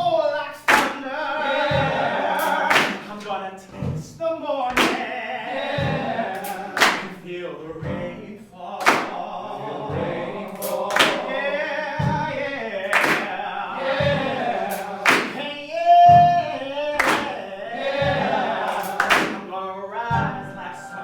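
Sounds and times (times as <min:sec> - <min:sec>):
men singing work song: 0:00.0 - 0:21.0
sharp percussive hits: 0:00.7 - 0:01.0, 0:01.7 - 0:03.2, 0:05.8 - 0:07.2, 0:09.9 - 0:11.3, 0:12.9 - 0:13.4, 0:14.0 - 0:15.5, 0:18.0 - 0:19.5.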